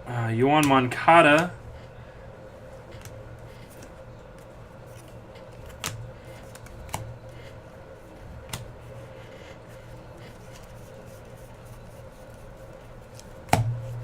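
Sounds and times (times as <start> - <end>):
steady low hum: 0.0 - 14.0
trading cards flipped through: 2.9 - 7.2.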